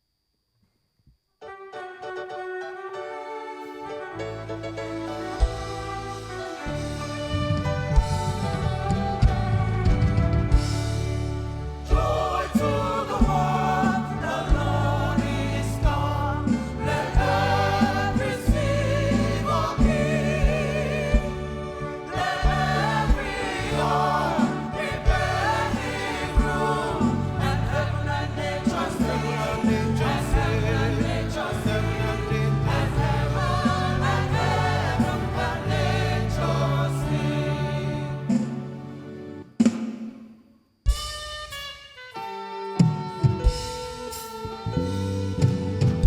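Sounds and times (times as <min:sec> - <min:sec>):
bass notes: 0:04.7 - 0:39.0, 0:44.5 - 0:46.0
gospel choir singing: 0:08.0 - 0:39.5
drum hits: 0:11.8 - 0:31.8.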